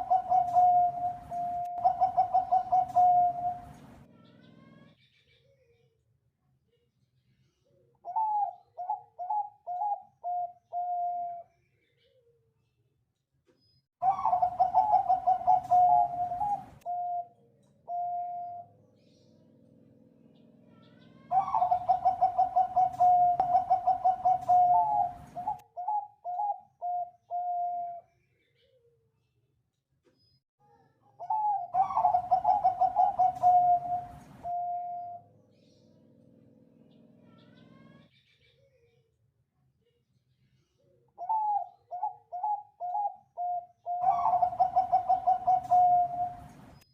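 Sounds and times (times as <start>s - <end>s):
dove cooing: 0.0s - 4.2s, 8.0s - 11.4s, 14.0s - 18.8s, 20.7s - 28.0s, 31.2s - 35.3s, 41.2s - 46.7s.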